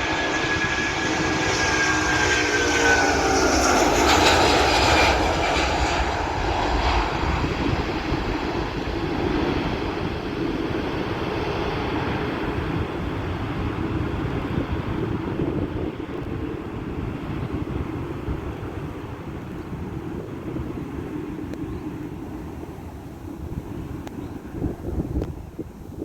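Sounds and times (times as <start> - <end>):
jet airliner engine roar: 0.0 - 26.0.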